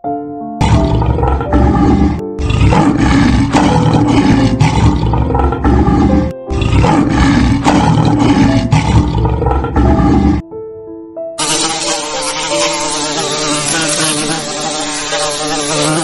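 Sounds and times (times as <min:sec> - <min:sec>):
background music: 0:00.0 - 0:16.0
lion roaring: 0:00.6 - 0:10.4.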